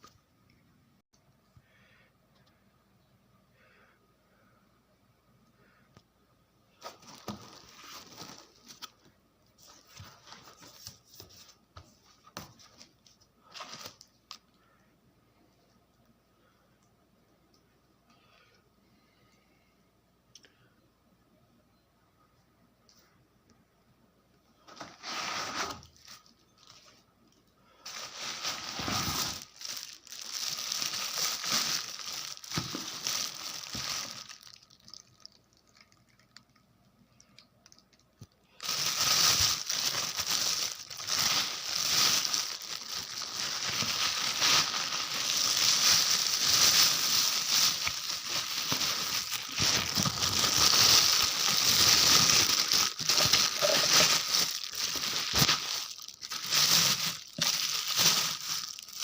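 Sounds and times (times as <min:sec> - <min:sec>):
plastic packaging crinkling: 0:06.8 - 0:14.5, 0:27.8 - 0:36.5, 0:37.7 - 0:59.0.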